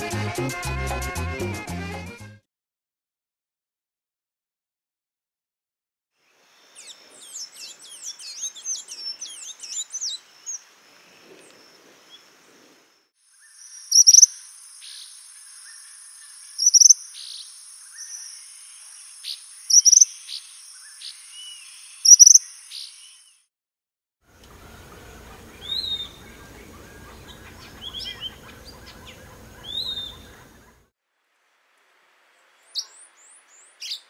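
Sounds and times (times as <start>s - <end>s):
birds twittering chirps: 6.2s - 12.7s, 13.3s - 23.4s, 24.4s - 30.9s, 32.4s - 34.0s
insect trill: 10.4s - 23.3s
loud sharp bird calls: 13.4s - 18.5s, 19.2s - 23.3s, 24.5s - 30.9s.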